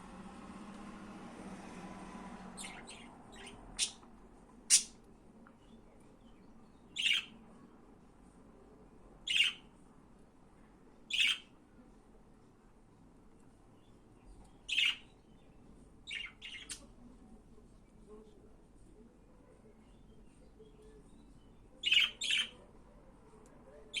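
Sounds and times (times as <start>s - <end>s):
budgerigars chirping: 2.6s - 4.0s, 7.0s - 7.3s, 9.3s - 9.6s, 14.7s - 15.0s, 21.8s - 22.6s.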